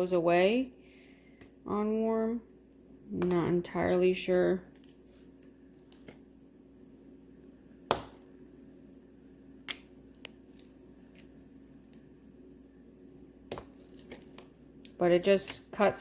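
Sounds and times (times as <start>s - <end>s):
low steady hum: 0.0s - 16.0s
knife chopping wax: 7.9s - 8.4s, 13.5s - 15.9s.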